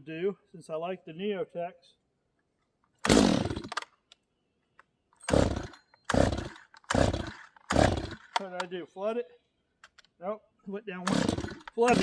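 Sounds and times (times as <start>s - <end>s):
chainsaw pull-start: 3.0s - 3.9s, 5.2s - 8.6s, 11.0s - 12.0s.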